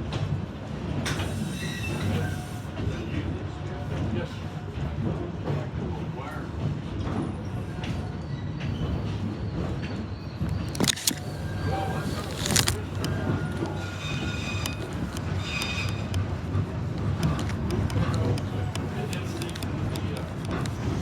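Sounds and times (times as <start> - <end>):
moving vehicle rumble: 10.4 - 21.0.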